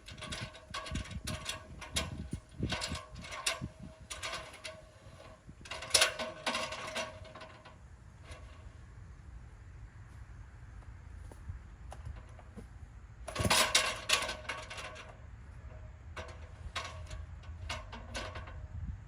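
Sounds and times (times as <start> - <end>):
metal parts clinking and rattling: 0.0 - 8.6, 13.3 - 18.6.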